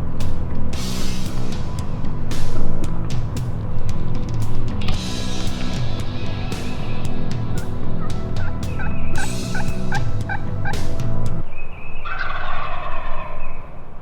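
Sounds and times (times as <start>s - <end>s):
heavy rock music: 0.0s - 11.5s
turkey gobbling: 12.0s - 13.7s.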